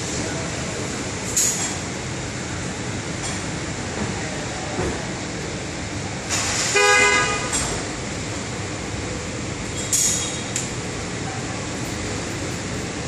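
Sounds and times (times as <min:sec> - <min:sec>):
traffic noise: 0:00.0 - 0:13.0
vehicle horn honk: 0:06.7 - 0:07.6.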